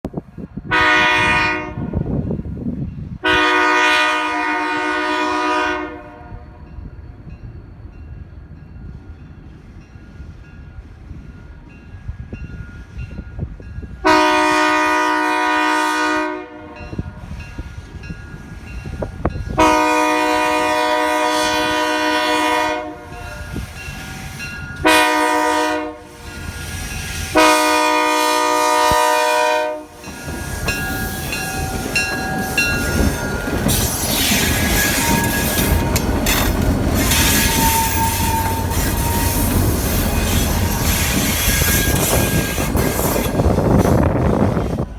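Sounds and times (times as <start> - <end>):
low rumble of passing train: 0.1 - 44.9
locomotive air horn blasts: 0.7 - 2.0, 3.2 - 6.6, 14.0 - 17.4, 19.5 - 24.1, 24.8 - 30.6, 32.4 - 44.8.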